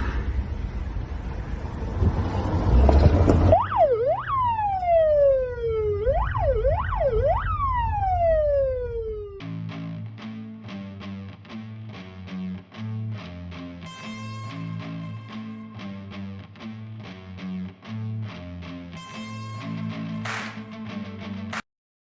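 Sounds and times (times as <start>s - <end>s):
rumbling noise: 0.0s - 3.5s
emergency vehicle siren: 1.6s - 9.6s
guitar music: 8.8s - 21.6s.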